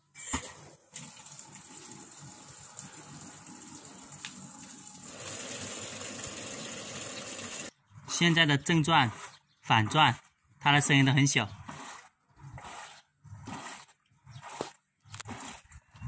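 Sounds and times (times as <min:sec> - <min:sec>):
water gushing into washing machine: 0:00.9 - 0:07.7.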